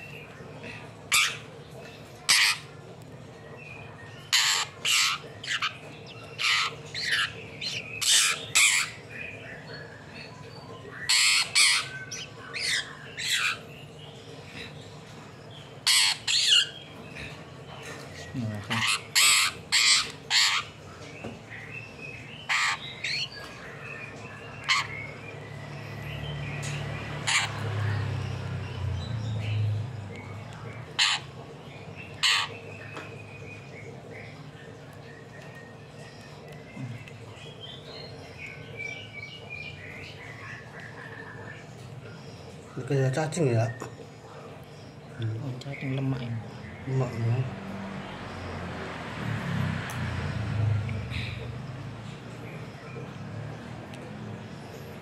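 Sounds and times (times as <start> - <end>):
bird distress squawks: 2.2 - 2.8, 4.3 - 5.8, 6.4 - 9.0, 11.0 - 13.7, 15.8 - 16.8, 18.7 - 20.8, 22.4 - 23.3, 24.6 - 25.1, 27.2 - 27.6, 30.9 - 31.4, 32.2 - 32.6
bird cawing: 18.7 - 20.8, 22.5 - 23.3, 31.0 - 31.4, 32.2 - 32.6.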